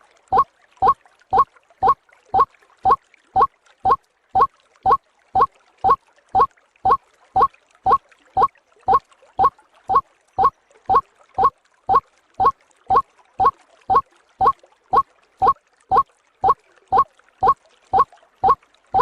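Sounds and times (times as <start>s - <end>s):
waterhen calling: 9.4s - 14.0s, 17.4s - 19.0s.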